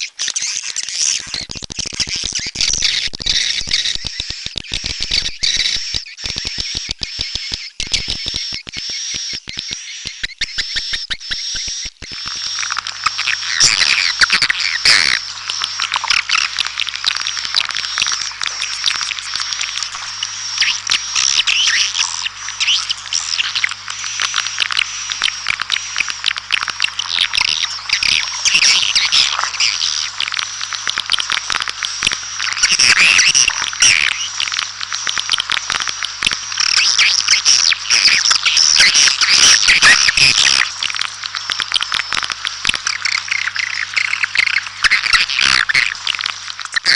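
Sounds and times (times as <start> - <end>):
swiftlets chirping and twittering: 0.0 - 23.8
rapid regular clicks: 5.9 - 39.1.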